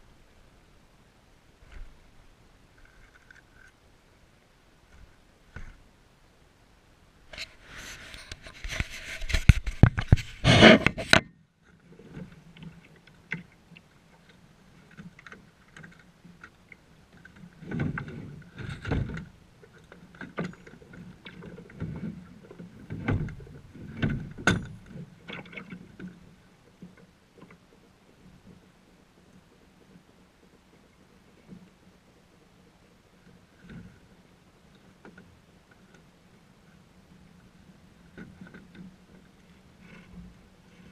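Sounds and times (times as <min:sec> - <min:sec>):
paddle strokes in water: 0:07.3 - 0:40.9
paddle knocking against hull: 0:20.2 - 0:28.6.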